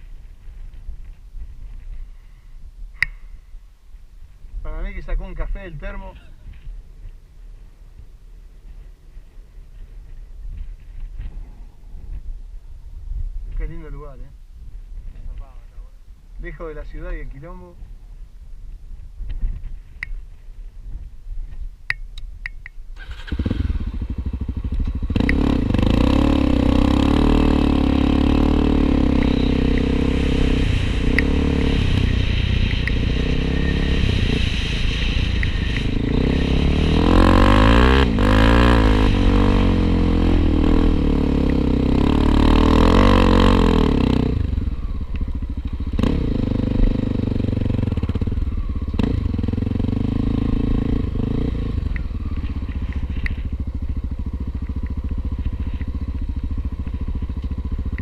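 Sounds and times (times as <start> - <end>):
motorcycle engine revving: 23.0 - 58.0.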